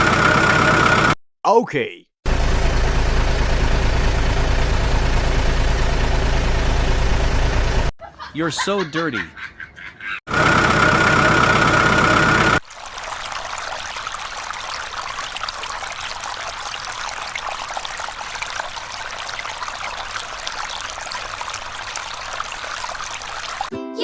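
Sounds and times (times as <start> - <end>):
water spraying and trickling: 12.6 - 23.7.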